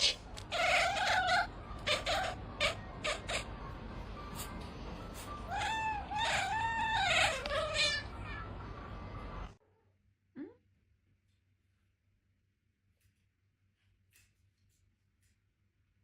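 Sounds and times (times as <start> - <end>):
cat yowling: 0.0 - 3.5, 5.4 - 8.6.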